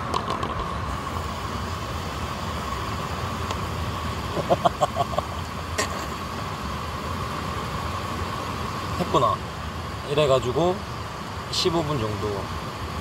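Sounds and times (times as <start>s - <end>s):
steady rushing noise outdoors: 0.0s - 13.0s.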